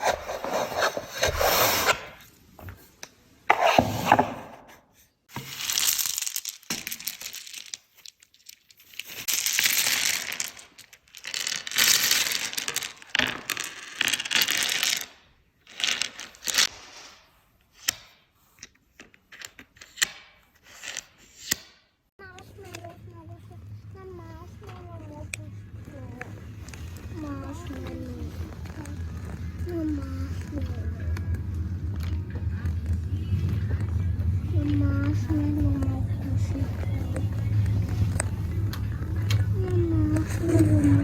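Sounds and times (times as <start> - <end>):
wrapping material tearing and crumpling: 5.4 - 13.2.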